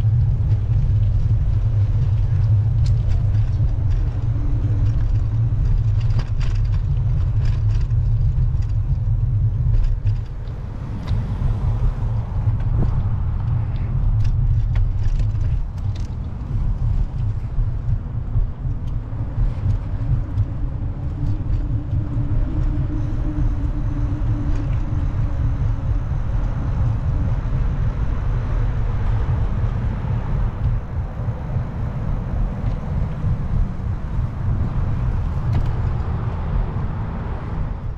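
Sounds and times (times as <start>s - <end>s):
passing cars: 0.0s - 37.9s
road noise: 0.0s - 37.9s
wind rumble on microphone: 0.0s - 37.9s.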